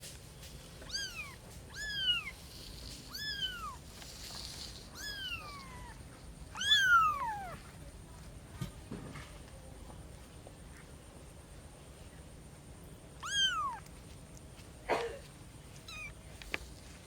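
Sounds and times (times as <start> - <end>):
kitten meowing: 0.8 - 2.4, 3.1 - 3.8, 4.9 - 7.6, 13.2 - 13.9, 15.9 - 16.2.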